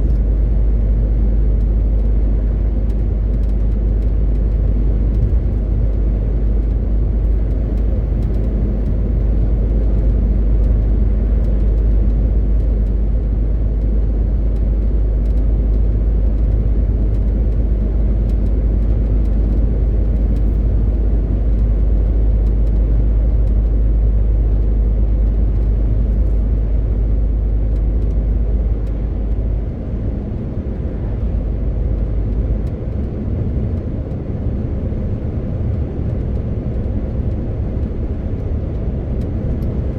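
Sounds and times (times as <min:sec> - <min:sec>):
road noise: 0:04.7 - 0:39.9
truck diesel engine droning: 0:15.0 - 0:22.0.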